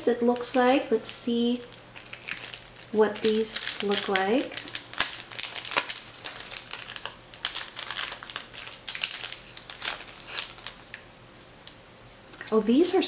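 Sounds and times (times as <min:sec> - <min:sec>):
paper crinkling and rustling: 0:01.5 - 0:11.0.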